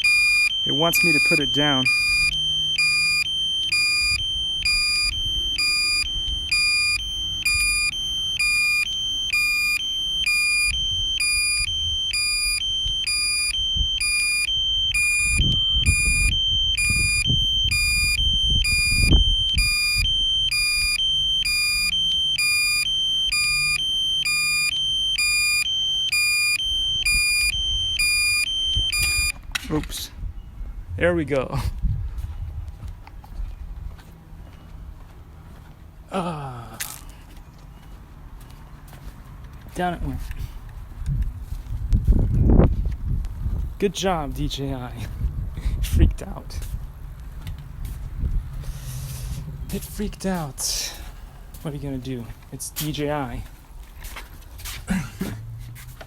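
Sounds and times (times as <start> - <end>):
high-pitched alarm beeps: 0.0 - 29.4
low rumbling noise: 46.7 - 51.7.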